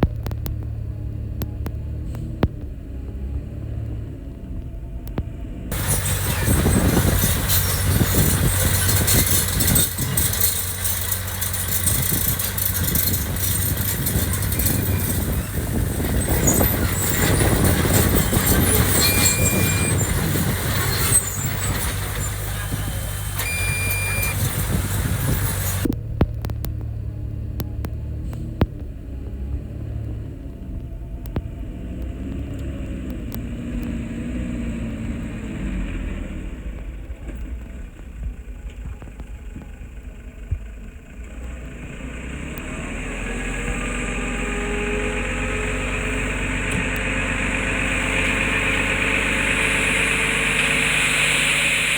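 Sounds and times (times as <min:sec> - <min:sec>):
diesel engine low hum: 0:00.0 - 0:51.9
high squeals: 0:05.7 - 0:25.9
loud rattling rushing noise: 0:05.7 - 0:25.9.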